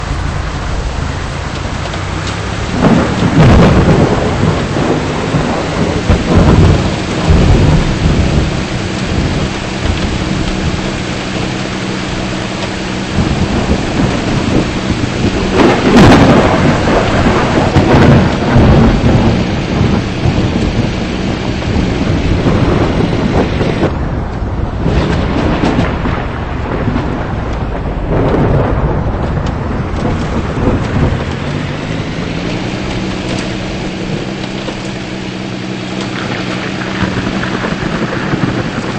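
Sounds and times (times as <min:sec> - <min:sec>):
heavy rain: 0:00.0 - 0:38.9
low rolls of thunder: 0:00.0 - 0:38.9.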